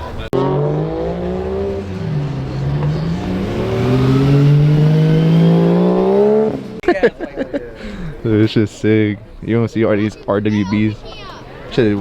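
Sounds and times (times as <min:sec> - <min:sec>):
car engine accelerating: 0:00.0 - 0:06.8.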